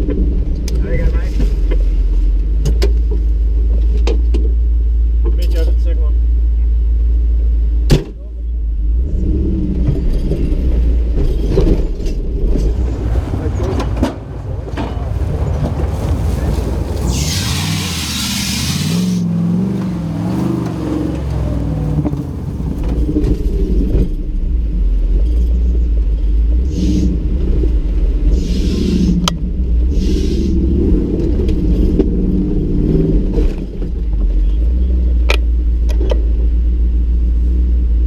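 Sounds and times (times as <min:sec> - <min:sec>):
truck engine revving: 0:12.4 - 0:23.9
hiss bursts: 0:12.8 - 0:19.3.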